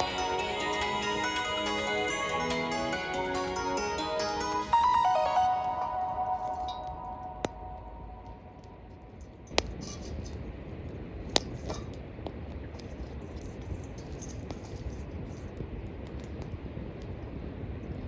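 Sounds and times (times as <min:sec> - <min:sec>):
campfire crackling: 0:00.0 - 0:18.0
fire sharp pops: 0:09.0 - 0:18.0.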